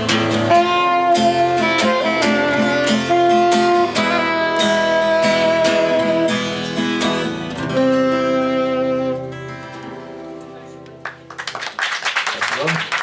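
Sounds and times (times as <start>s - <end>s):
live band playing instrumental: 0.0s - 10.2s
strummed guitar: 0.0s - 11.3s
long held melody notes: 0.5s - 7.0s, 7.6s - 10.0s.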